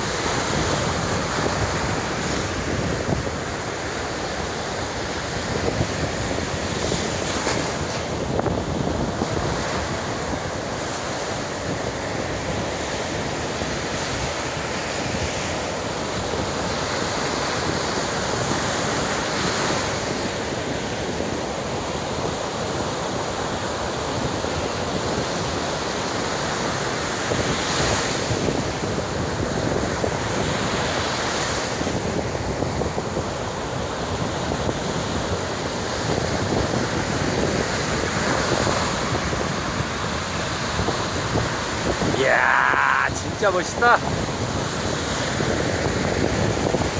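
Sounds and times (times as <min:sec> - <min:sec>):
wind buffeting microphone: 0:00.0 - 0:19.1, 0:27.3 - 0:42.2, 0:43.0 - 0:46.9
ocean surf breaking: 0:25.0 - 0:46.9.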